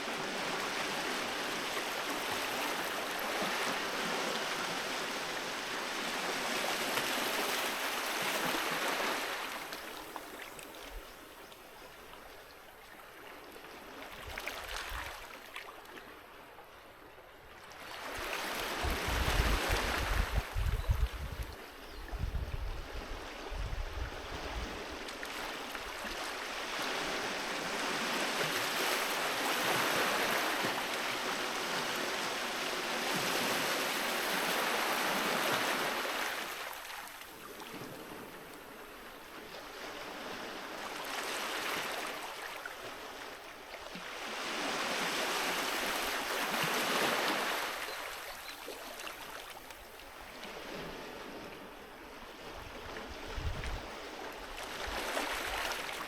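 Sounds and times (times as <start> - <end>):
sea waves washing onto beach: 0.0 - 10.9, 23.2 - 56.0.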